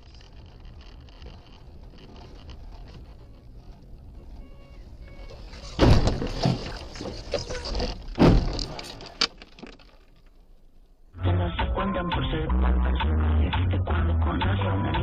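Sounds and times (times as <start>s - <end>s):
rattling and clattering: 5.4s - 10.6s
heavy car collision impact: 5.5s - 9.8s.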